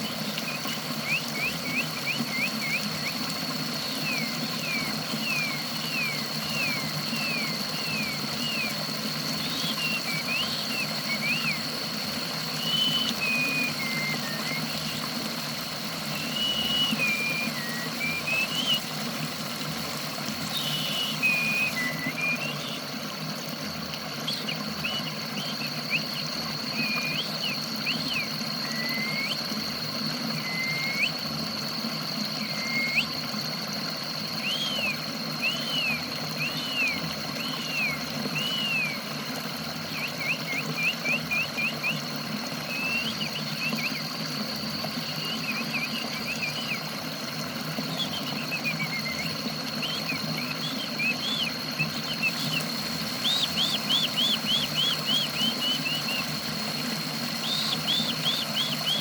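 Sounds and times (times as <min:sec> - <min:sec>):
running water rush: 0:00.0 - 0:59.0
songbird chirping: 0:48.0 - 0:59.0.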